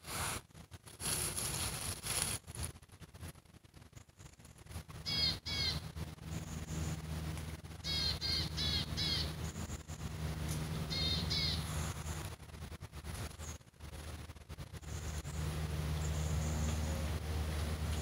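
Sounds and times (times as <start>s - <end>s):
low hum: 0.6s - 18.0s
bird harsh calls: 5.0s - 7.0s, 7.8s - 10.0s, 10.8s - 12.2s.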